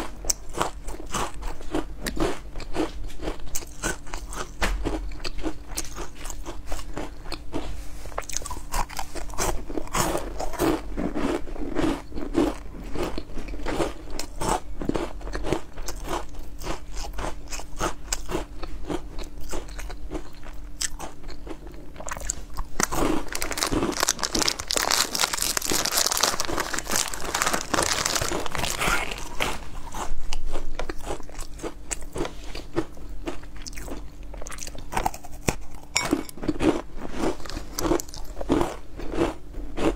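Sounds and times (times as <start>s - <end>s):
crunchy snack being eaten: 0.0s - 39.9s.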